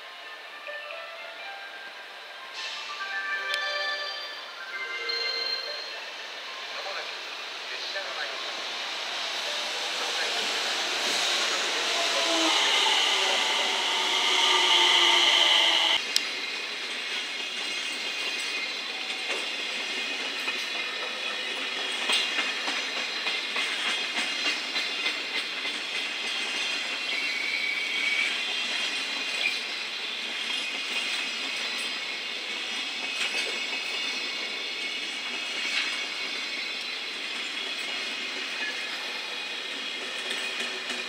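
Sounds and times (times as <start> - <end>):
electric train passing close: 0.0 - 41.0
train flange squeal: 0.0 - 41.0
wheels clicking over rail joints: 16.9 - 27.3.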